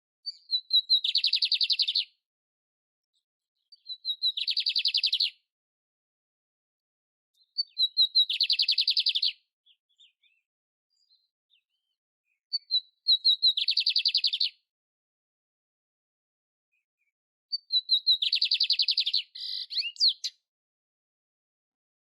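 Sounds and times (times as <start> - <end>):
canary singing trill: 3.8 - 5.4, 7.4 - 10.4, 11.1 - 14.6, 17.5 - 20.4.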